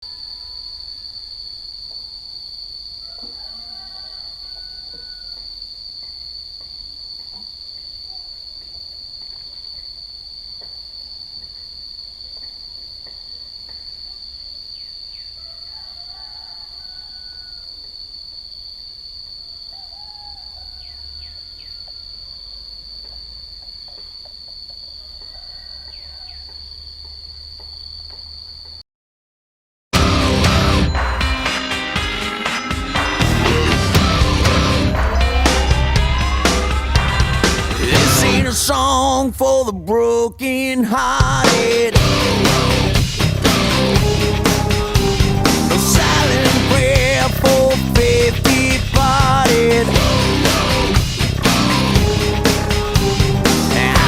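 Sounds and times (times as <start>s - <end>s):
faint short insect calls: 0.0s - 28.8s
insects droning: 0.0s - 28.8s, 30.0s - 54.0s
low rumble: 33.2s - 54.0s.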